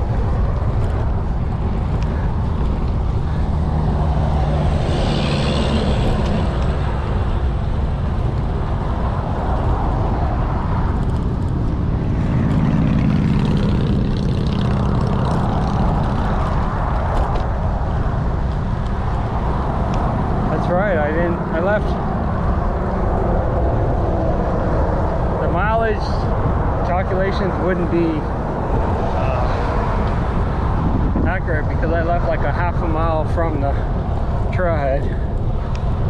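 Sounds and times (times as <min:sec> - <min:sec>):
wind rumbling on microphone: 0:00.0 - 0:36.0.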